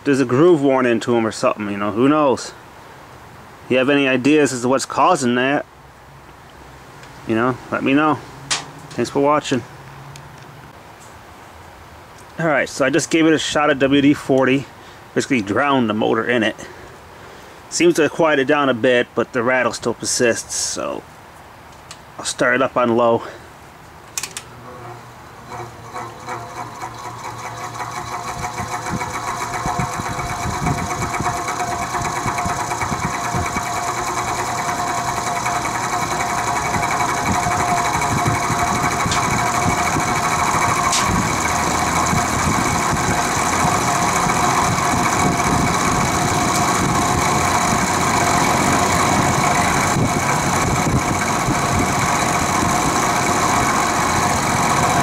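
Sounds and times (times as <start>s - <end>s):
fan rattle: 7.0s - 9.6s, 24.0s - 55.0s
box fan running: 24.2s - 55.0s.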